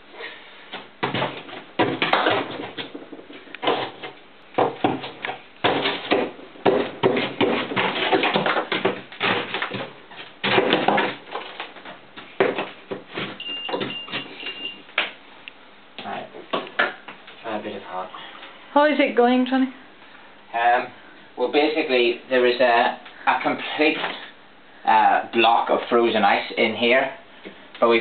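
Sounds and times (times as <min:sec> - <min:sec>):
knocks and scrapes on fridge ice: 0:01.0 - 0:14.3.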